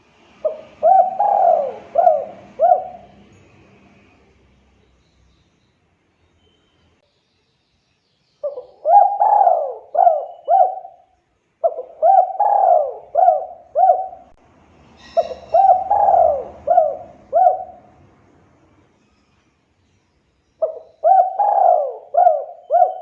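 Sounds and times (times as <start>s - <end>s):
dove cooing: 0.4s - 3.3s, 8.4s - 11.0s, 11.6s - 14.4s, 15.0s - 18.0s, 20.6s - 23.0s.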